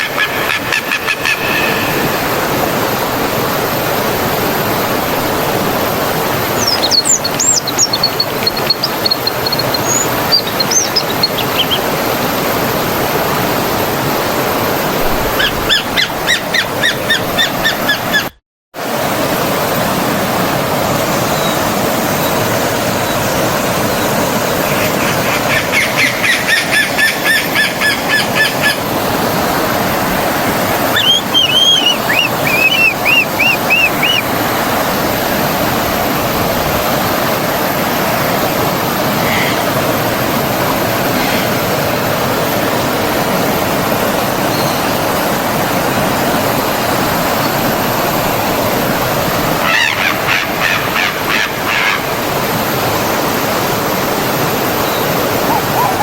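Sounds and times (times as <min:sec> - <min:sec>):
birds calling and chirping: 0:00.0 - 0:02.4, 0:06.2 - 0:12.5, 0:24.0 - 0:29.0, 0:30.7 - 0:35.2, 0:54.6 - 0:56.0
stream water flowing: 0:00.0 - 0:18.0, 0:18.8 - 0:56.0.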